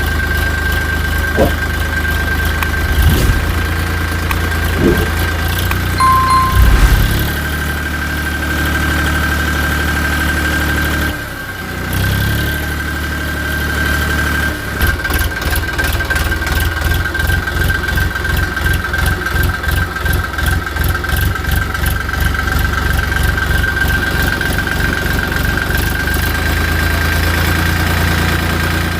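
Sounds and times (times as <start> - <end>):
high whine: 6.0 - 7.5.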